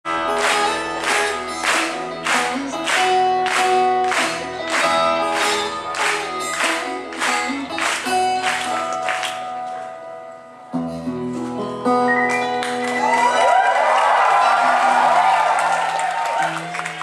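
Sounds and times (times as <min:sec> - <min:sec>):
sustained melody notes: 0:00.1 - 0:10.9
strummed acoustic strings: 0:00.1 - 0:13.3
folk rock band playing: 0:00.1 - 0:13.6.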